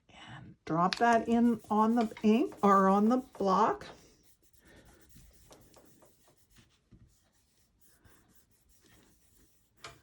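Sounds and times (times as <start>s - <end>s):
cardstock rubbing and tapping: 0.8s - 4.0s, 5.0s - 7.3s.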